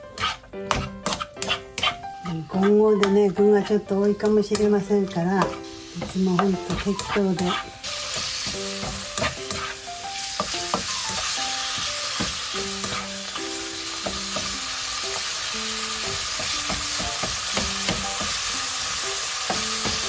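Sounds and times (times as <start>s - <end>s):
spatula scraping a pan: 0.0s - 4.7s, 5.3s - 9.9s, 12.7s - 13.1s
light background music: 0.0s - 20.0s
chicken sizzling in oil: 4.6s - 20.0s.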